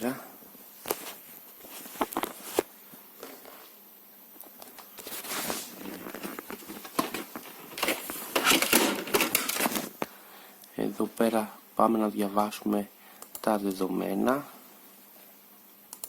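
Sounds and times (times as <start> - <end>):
rustling and scraping: 0.8 - 3.8, 4.7 - 10.1
sharp clicks: 13.2 - 13.5.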